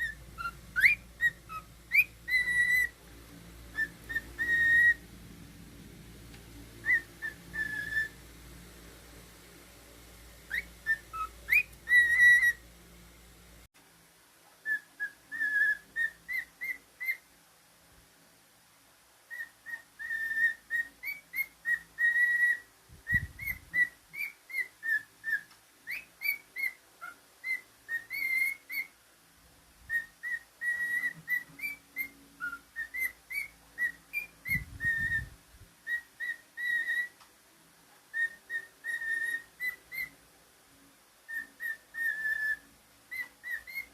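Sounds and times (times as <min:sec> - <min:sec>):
cockatiel whistling a tune: 0:00.0 - 0:03.0, 0:03.7 - 0:05.1, 0:06.7 - 0:08.2, 0:10.5 - 0:12.6, 0:14.6 - 0:17.3, 0:19.3 - 0:29.0, 0:29.9 - 0:37.3, 0:38.0 - 0:40.2, 0:41.2 - 0:43.9.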